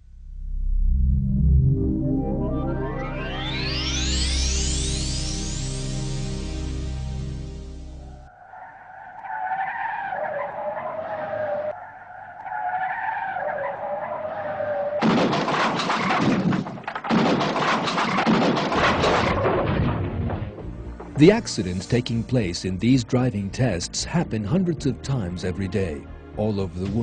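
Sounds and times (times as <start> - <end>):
car tyres squealing: 8.0 - 16.2
car crash crunching: 8.4 - 22.2.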